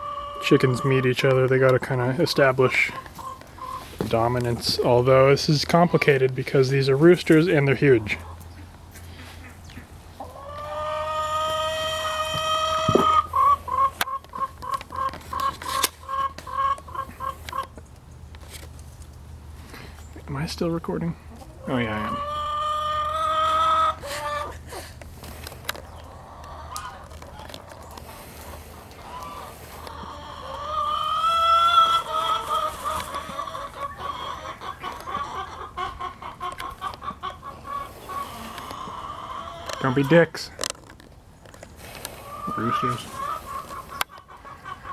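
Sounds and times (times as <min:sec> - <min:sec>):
chicken squawking: 0:00.0 - 0:06.0, 0:07.9 - 0:17.8, 0:21.3 - 0:40.4, 0:41.8 - 0:44.9
chicken clucking: 0:00.0 - 0:18.0, 0:20.4 - 0:40.9, 0:41.6 - 0:44.9.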